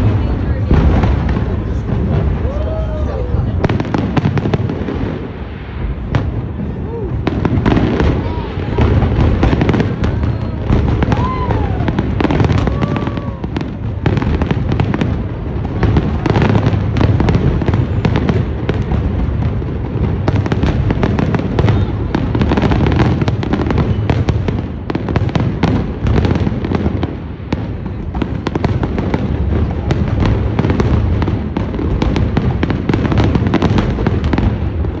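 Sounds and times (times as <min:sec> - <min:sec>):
low rumble: 0:00.0 - 0:12.2
fireworks bangs and crackles: 0:00.0 - 0:35.0.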